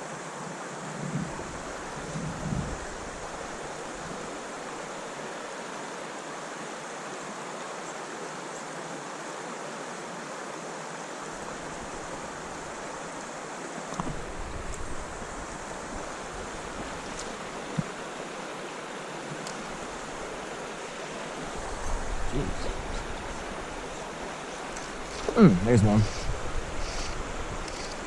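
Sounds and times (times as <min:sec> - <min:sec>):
creek water rushing: 0:00.0 - 0:28.0
wind buffeting microphone: 0:01.0 - 0:04.3, 0:21.5 - 0:23.9, 0:24.9 - 0:28.0.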